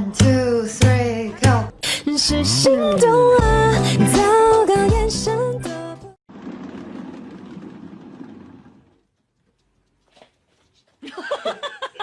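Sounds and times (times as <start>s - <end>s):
cat exercise wheel rumbling: 6.3s - 9.3s.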